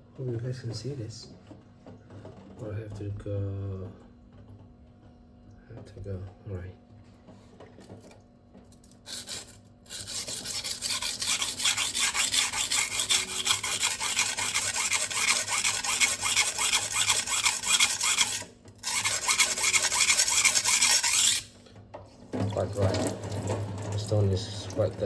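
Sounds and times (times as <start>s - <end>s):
knife scraping on sharpening stone: 9.1s - 21.5s.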